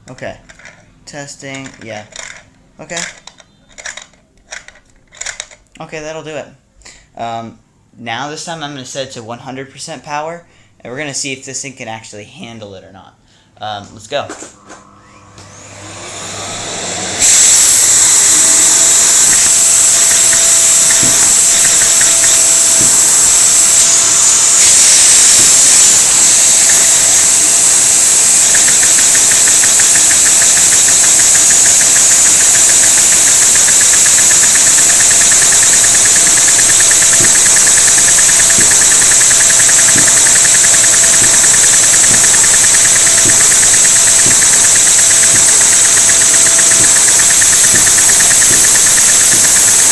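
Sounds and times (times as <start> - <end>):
vacuum suction running loudly: 14.6 - 49.9
fast even engine clicking: 17.2 - 49.9.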